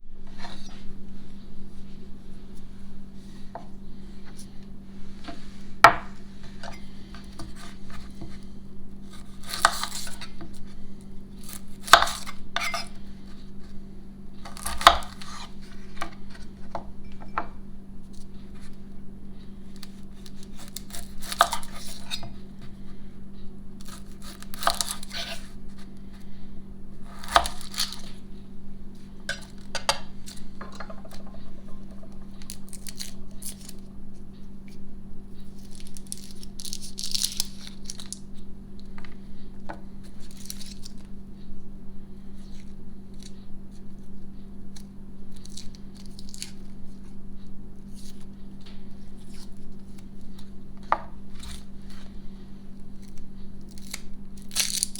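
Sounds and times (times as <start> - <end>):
steady low hum: 0.0 - 54.9
knife on cutting board: 11.5 - 13.0, 20.6 - 22.4, 23.9 - 25.5.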